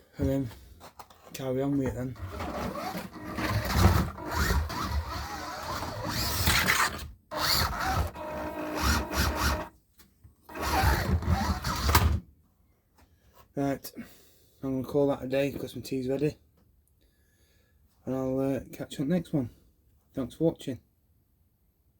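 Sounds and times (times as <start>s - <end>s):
small electric motor whining: 2.3s - 9.7s, 10.5s - 12.1s.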